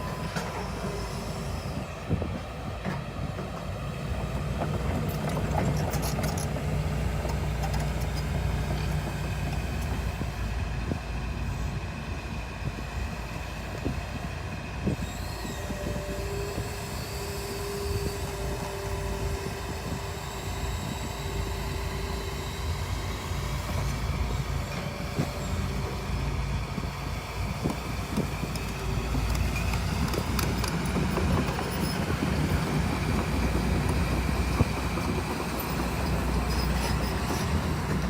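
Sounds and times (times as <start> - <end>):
excavator diesel engine: 0.0 - 38.0
steel tracks clanking: 15.0 - 38.0.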